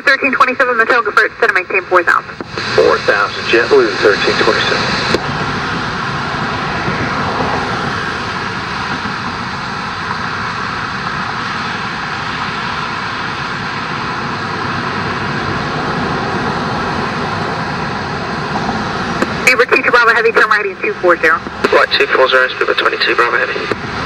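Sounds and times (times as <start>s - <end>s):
jet airliner noise: 0.0s - 24.0s.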